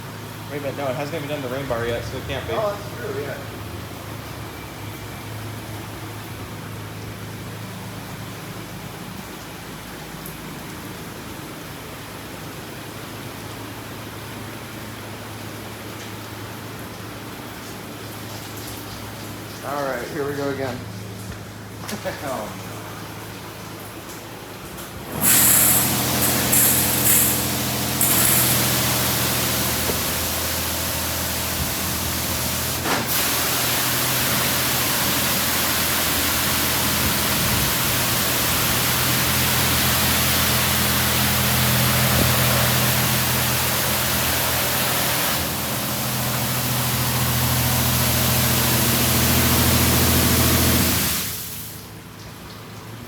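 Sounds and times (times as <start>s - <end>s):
pump humming: 14.4s - 53.0s
high-pressure water spray hissing: 25.1s - 52.0s.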